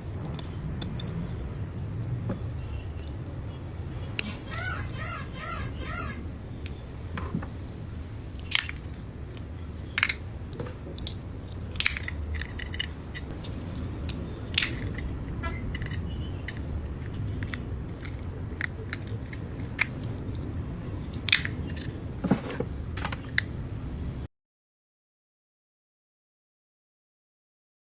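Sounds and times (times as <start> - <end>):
low background hum: 0.0 - 24.3.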